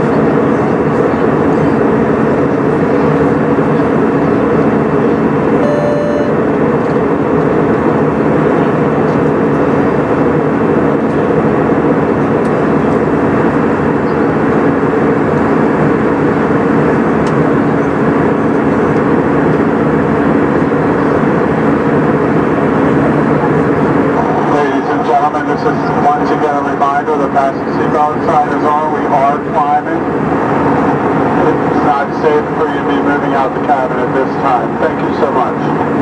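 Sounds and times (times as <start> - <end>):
airplane engine and airflow noise: 0.0 - 36.0
brief pitched tone: 5.6 - 6.6.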